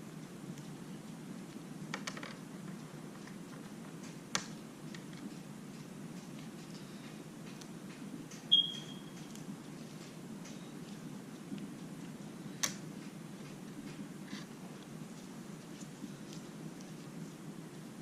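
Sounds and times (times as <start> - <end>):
steady low hum: 0.0 - 18.0
short high-pitched ping: 8.5 - 9.1.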